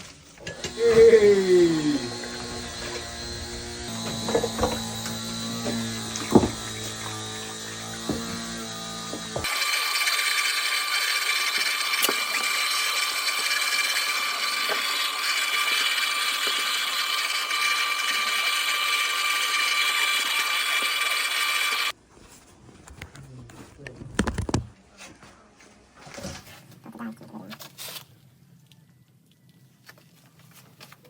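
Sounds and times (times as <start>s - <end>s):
power tool whining: 0.3s - 21.9s.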